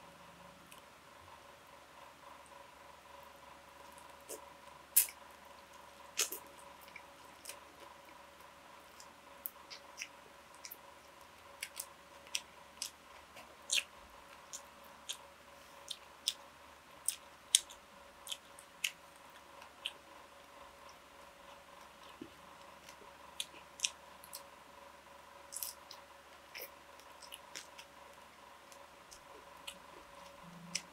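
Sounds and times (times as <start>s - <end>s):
faint steady hum: 0.0s - 30.9s
chewing: 5.0s - 8.2s, 8.9s - 16.4s, 17.0s - 20.0s, 25.5s - 28.0s.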